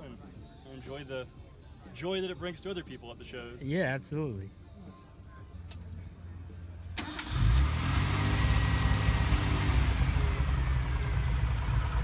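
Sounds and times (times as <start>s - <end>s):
car engine starting and idling: 7.0s - 12.0s.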